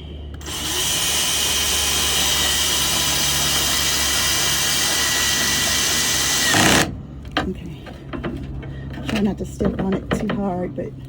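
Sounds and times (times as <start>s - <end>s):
power drill driving screw into metal: 0.4s - 6.9s.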